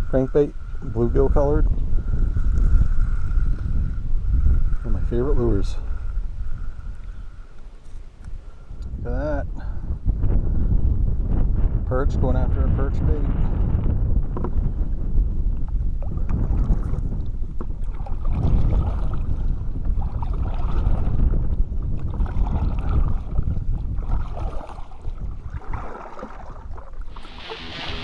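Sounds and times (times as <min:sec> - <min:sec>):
wind rumbling on microphone: 0:00.0 - 0:28.0
water lapping against kayak hull: 0:14.0 - 0:28.0.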